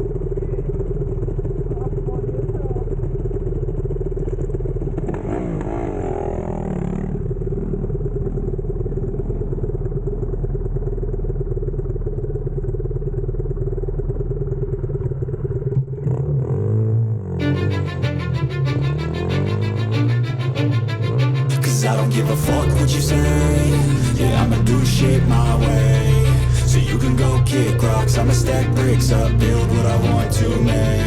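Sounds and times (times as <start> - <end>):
motorbike engine idling: 0.0 - 5.2, 7.0 - 16.0.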